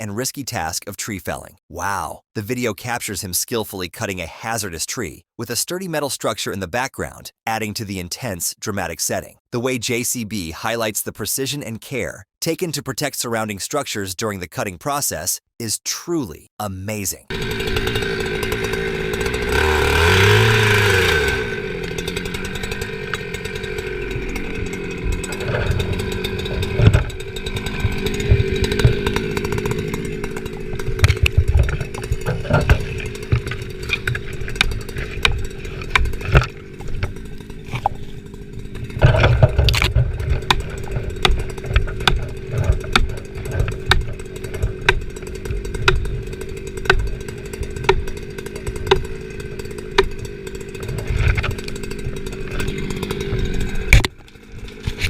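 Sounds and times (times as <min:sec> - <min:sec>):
chainsaw cutting a tree: 0:17.3 - 0:55.0
wood knocking and clattering: 0:30.6 - 0:38.0, 0:38.9 - 0:45.1.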